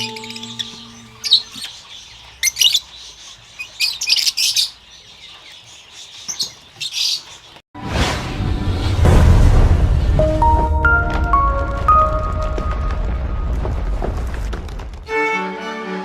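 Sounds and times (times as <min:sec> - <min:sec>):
background music: 0:00.0 - 0:01.4, 0:07.8 - 0:13.6
flock of birds chirping: 0:00.0 - 0:07.6.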